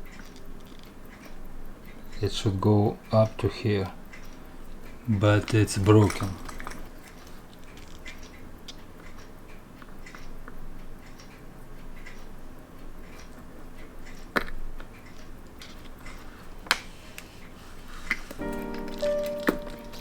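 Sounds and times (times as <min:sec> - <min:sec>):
metal clicks of watch tools: 0:04.1 - 0:17.4
background music: 0:18.4 - 0:20.0.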